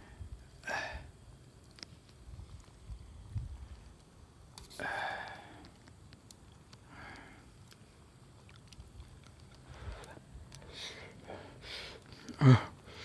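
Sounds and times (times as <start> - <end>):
small clicks: 1.6 - 2.8, 8.4 - 10.7.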